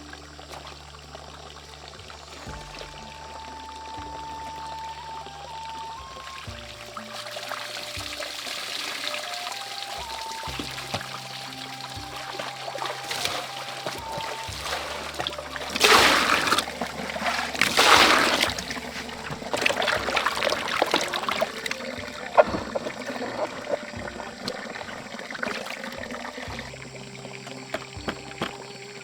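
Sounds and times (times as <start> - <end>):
water dripping: 0.0 - 29.0
water gushes: 0.0 - 29.0
water splashing and trickling: 0.0 - 29.0.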